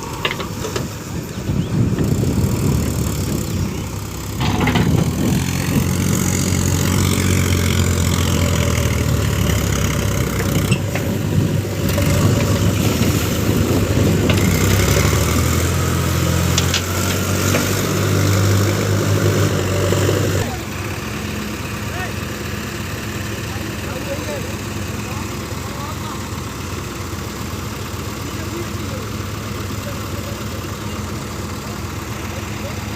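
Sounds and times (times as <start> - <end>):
heavy diesel engine under load: 0.0 - 32.9.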